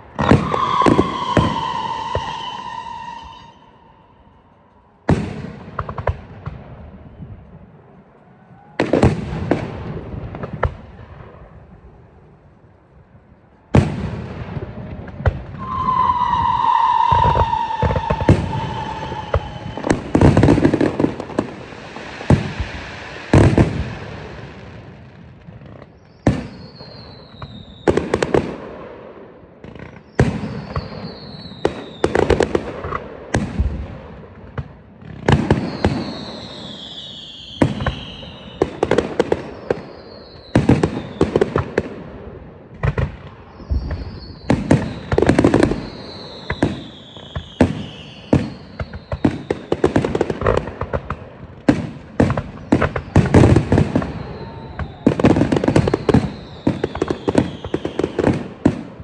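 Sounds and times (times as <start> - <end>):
firework cracks and pops: 0.0 - 3.6, 4.7 - 7.5, 8.3 - 11.6, 13.6 - 59.0
firework booms: 0.0 - 4.4, 5.0 - 7.8, 8.6 - 12.1, 13.6 - 59.0
falling firework whistles: 0.1 - 5.3, 14.8 - 24.7, 25.6 - 28.4, 29.8 - 32.9, 35.3 - 41.8, 42.9 - 50.6, 51.7 - 58.8.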